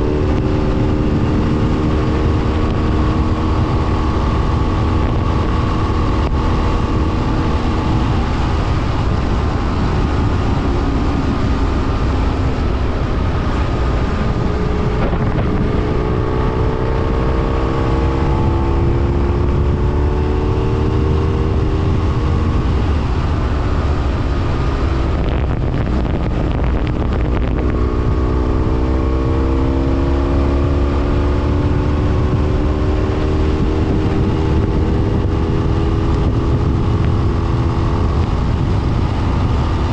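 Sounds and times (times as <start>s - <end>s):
motorcycle engine accelerating: 0.0s - 39.9s
wind and road noise: 0.0s - 39.9s.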